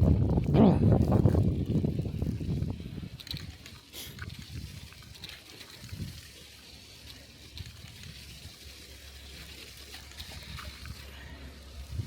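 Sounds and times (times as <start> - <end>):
bicycle tyres on snow: 0.0 - 12.0.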